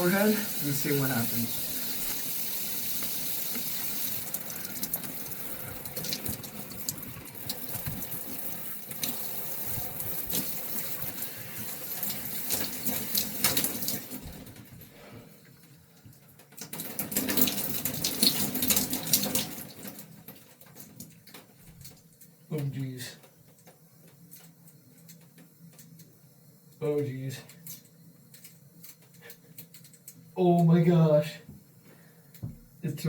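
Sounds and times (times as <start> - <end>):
water splashing and dripping: 0.0 - 14.8, 16.2 - 22.0
shower water spraying: 0.0 - 15.1, 16.6 - 20.3.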